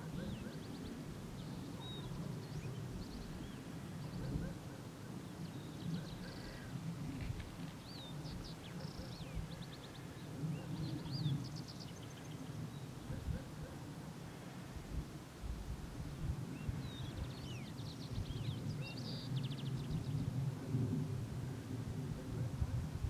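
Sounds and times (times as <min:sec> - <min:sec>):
wild birds calling: 0:00.0 - 0:14.4.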